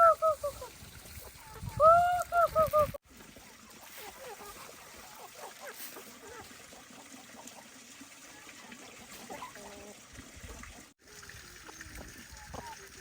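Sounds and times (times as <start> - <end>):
water trickling: 3.0 - 13.0.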